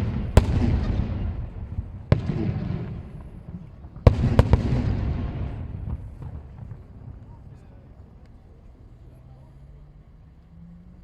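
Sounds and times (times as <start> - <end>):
fireworks bursting: 0.0 - 7.5.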